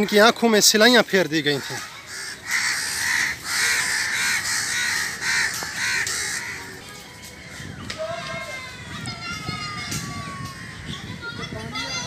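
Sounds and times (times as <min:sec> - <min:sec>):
birds calling harshly: 0:00.0 - 0:08.2.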